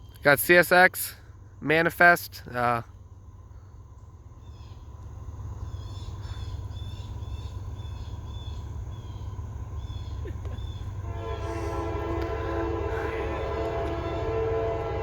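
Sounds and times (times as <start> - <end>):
freight train rumble: 0.0 - 15.0
small birds chirping: 2.9 - 11.0
locomotive air horn: 10.9 - 15.0.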